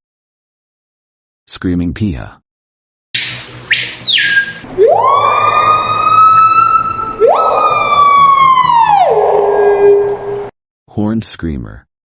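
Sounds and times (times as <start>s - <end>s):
bird calling with ringing whistles: 3.2s - 4.7s.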